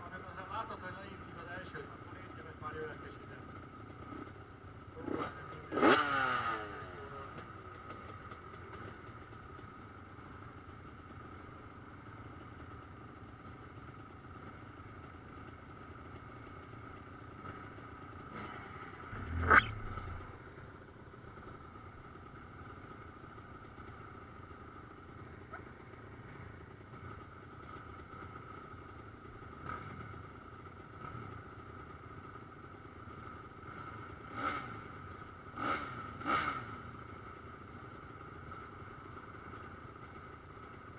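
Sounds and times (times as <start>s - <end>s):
motocross engines racing: 5.0s - 7.4s, 18.3s - 20.4s
motorcycle passing by: 5.0s - 7.4s, 18.3s - 20.4s, 34.3s - 34.8s, 35.6s - 36.8s.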